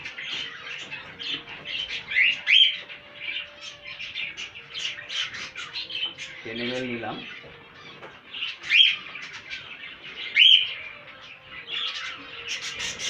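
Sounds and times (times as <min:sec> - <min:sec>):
sharp bird calls: 0:00.0 - 0:13.0
small cage birds chirping: 0:00.0 - 0:13.0.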